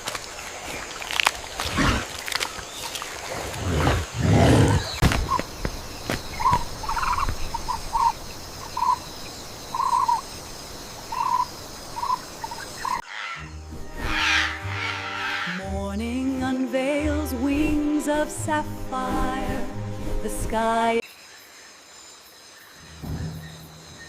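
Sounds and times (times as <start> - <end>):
sharp cracks: 5.0 - 8.1
short repeated animal calls: 12.9 - 15.6
deep animal call: 12.9 - 15.7.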